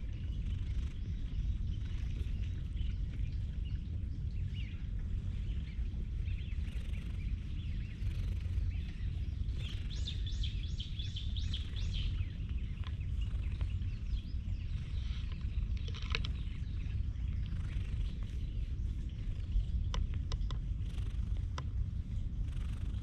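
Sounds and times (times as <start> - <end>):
steady low rumble: 0.0 - 23.0
bird chirps: 6.3 - 21.1.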